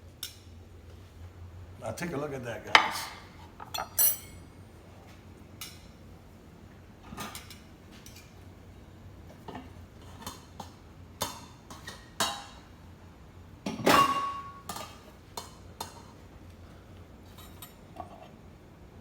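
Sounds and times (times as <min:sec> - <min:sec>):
dishes and utensils clinking: 0:02.8 - 0:04.4, 0:13.7 - 0:15.0.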